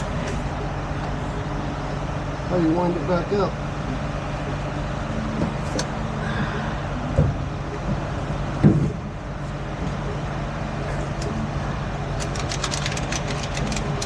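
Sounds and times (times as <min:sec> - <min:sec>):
sharp clicks: 0:12.2 - 0:14.0.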